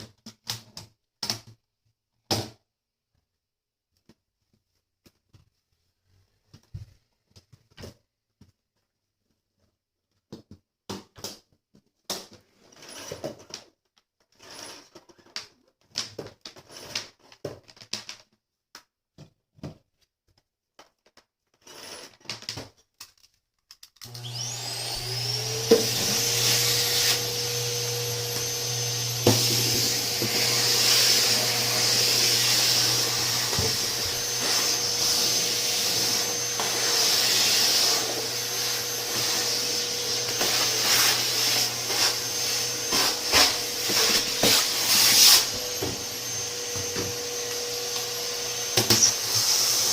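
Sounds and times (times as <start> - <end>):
vacuum cleaner motor running: 24.0 - 49.9.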